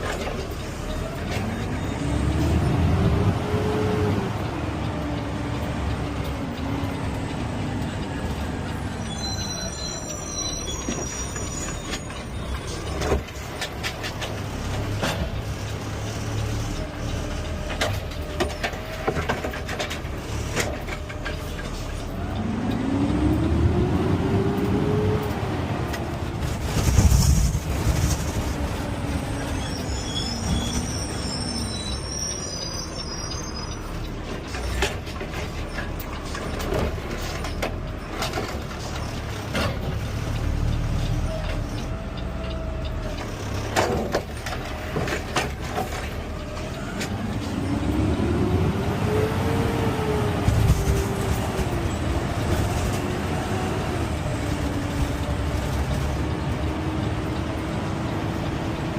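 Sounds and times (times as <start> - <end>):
clunks and rattles: 10.6 - 31.2, 33.8 - 49.1, 50.2 - 58.9.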